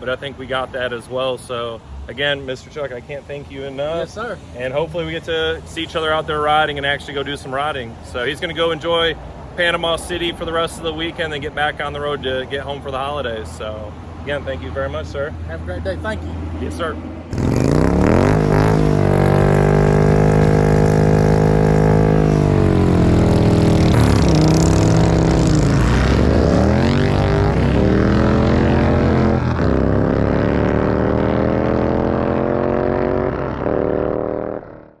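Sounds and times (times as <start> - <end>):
motorcycle engine revving: 15.8 - 35.0.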